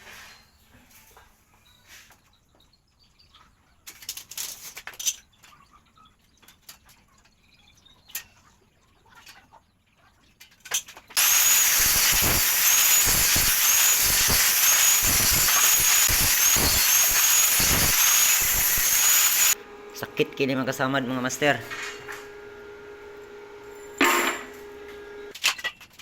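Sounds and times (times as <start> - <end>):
loud steady hiss: 11.2 - 19.6.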